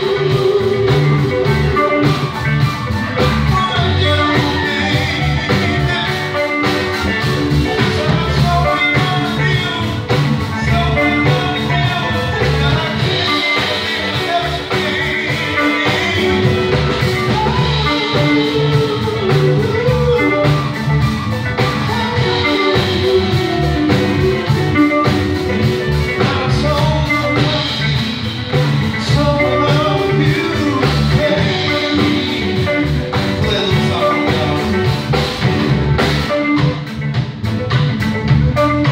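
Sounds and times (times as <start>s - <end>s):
live band with guitar: 0.0s - 38.9s.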